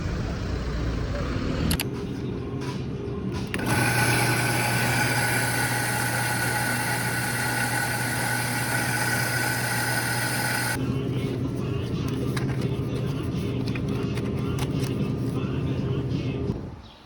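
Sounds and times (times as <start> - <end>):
engine hum with high whine: 0.0 - 3.7.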